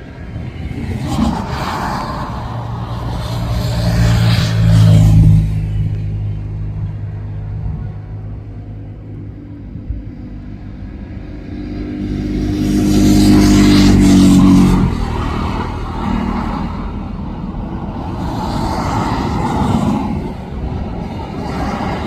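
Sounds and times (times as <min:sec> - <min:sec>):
traffic rumble: 0:00.0 - 0:22.0
vehicle passing close by: 0:00.0 - 0:22.0.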